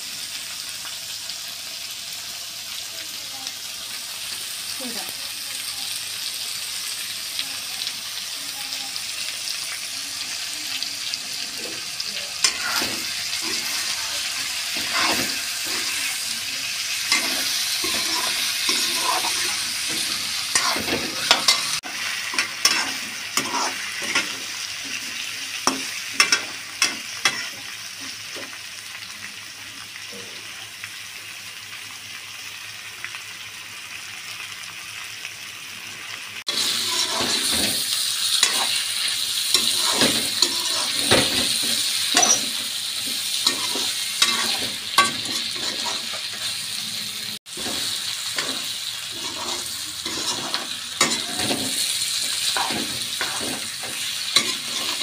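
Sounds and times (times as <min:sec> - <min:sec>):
meat sizzling in hot oil: 0:00.0 - 0:55.0
metal spatula scraping a pan: 0:12.4 - 0:16.3, 0:16.9 - 0:27.6, 0:36.5 - 0:46.6, 0:47.5 - 0:55.0.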